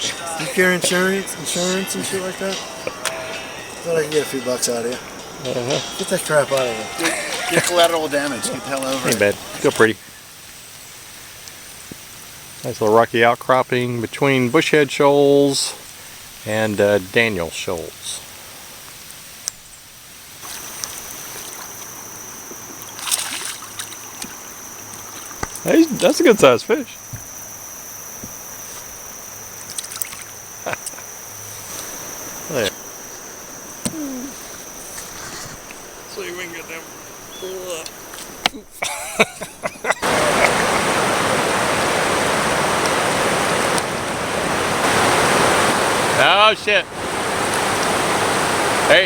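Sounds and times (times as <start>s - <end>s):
high-pitched insect drone: 0.0s - 10.0s, 20.4s - 49.0s
water splash: 0.0s - 10.0s, 20.4s - 26.9s, 28.4s - 49.0s
river water flowing: 0.0s - 19.5s, 20.2s - 49.0s.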